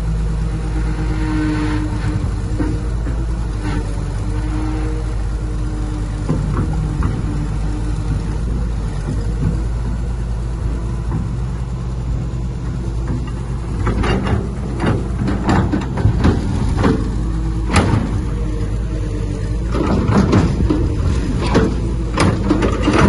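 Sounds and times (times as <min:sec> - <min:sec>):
diesel earthmoving machinery running: 0:00.0 - 0:23.0
sharp metal clanks and knocks: 0:12.6 - 0:18.4, 0:19.7 - 0:23.0.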